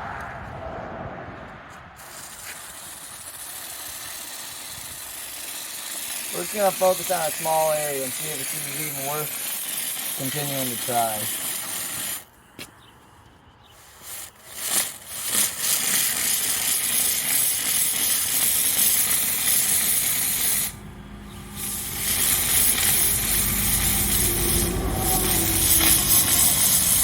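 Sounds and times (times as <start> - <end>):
steam hissing: 2.0 - 12.3, 13.9 - 27.0.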